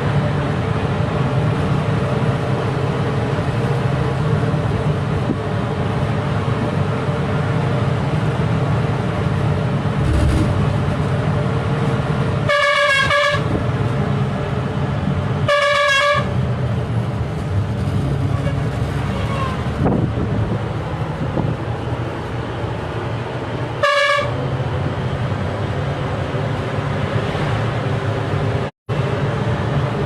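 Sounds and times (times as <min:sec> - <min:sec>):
truck engine and road noise: 0:00.0 - 0:30.0
truck horn blasts: 0:12.4 - 0:13.6, 0:15.4 - 0:16.4, 0:18.3 - 0:19.7, 0:23.8 - 0:24.4.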